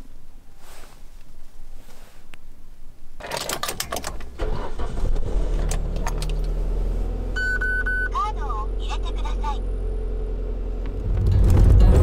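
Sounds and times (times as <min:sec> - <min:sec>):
car keys jangling: 0:03.2 - 0:04.3
car engine starting and idling: 0:03.2 - 0:12.0.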